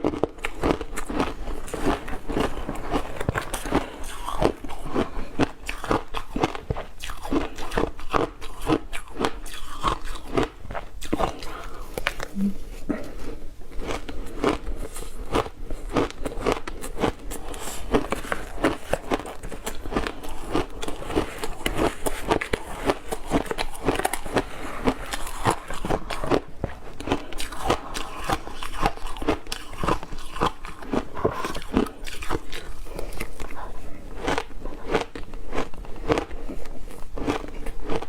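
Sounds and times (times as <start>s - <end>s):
person crunching ice: 13.7s - 33.3s.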